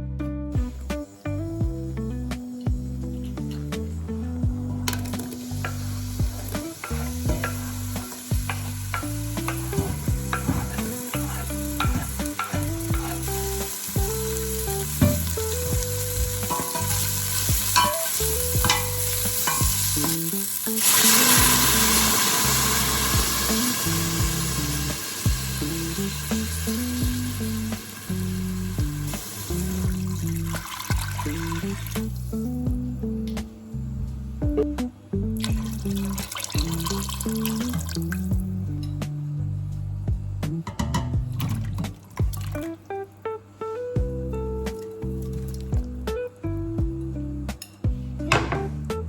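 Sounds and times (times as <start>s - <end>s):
food sizzling in a pan: 1.9s - 32.6s, 35.5s - 38.4s.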